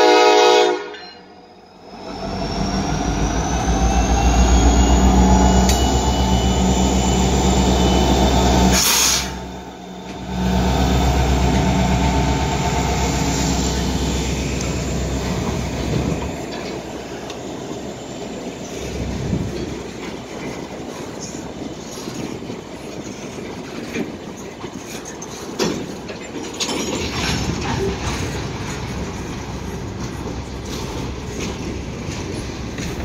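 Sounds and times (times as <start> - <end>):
diesel locomotive engine passing: 0.0 - 33.0
wheel and rail noise: 0.8 - 33.0
empty hopper cars rolling: 10.1 - 33.0.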